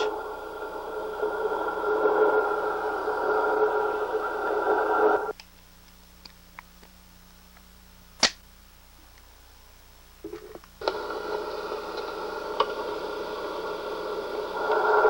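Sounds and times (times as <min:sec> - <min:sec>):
loud drone of held tones: 0:00.0 - 0:05.3
faint hum: 0:00.0 - 0:15.0
clicks: 0:10.3 - 0:11.1.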